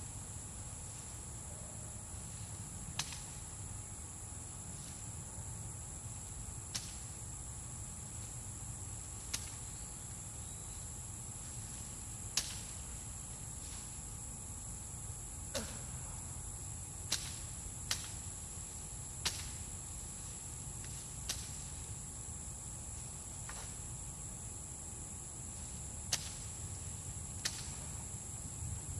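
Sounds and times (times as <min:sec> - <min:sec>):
insects trilling: 0:00.0 - 0:28.9
machete chopping corn stalks: 0:02.9 - 0:03.4, 0:06.7 - 0:07.2, 0:09.2 - 0:09.7, 0:11.6 - 0:13.0, 0:17.1 - 0:18.3, 0:19.2 - 0:19.7, 0:20.8 - 0:21.8, 0:23.4 - 0:23.8, 0:26.1 - 0:26.5, 0:27.4 - 0:27.9.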